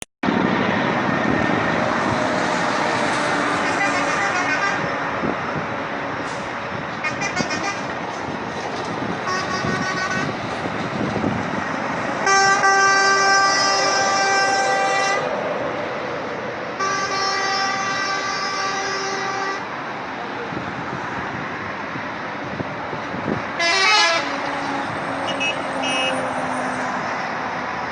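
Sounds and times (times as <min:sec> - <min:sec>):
road traffic noise: 0:00.2 - 0:27.9
vehicle horns: 0:03.6 - 0:05.0, 0:07.0 - 0:08.0, 0:09.2 - 0:10.4, 0:12.2 - 0:15.3, 0:16.8 - 0:19.7, 0:23.6 - 0:26.3.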